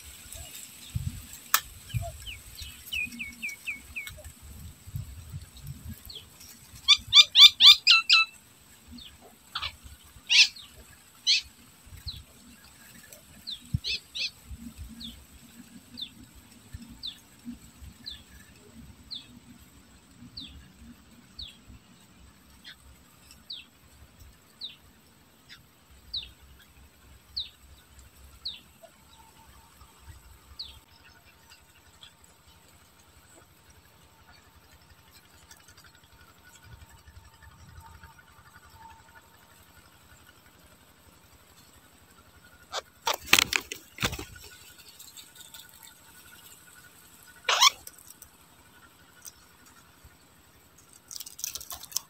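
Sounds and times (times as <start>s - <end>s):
bird chirping: 0.3s - 4.3s, 5.8s - 15.2s, 42.5s - 49.8s.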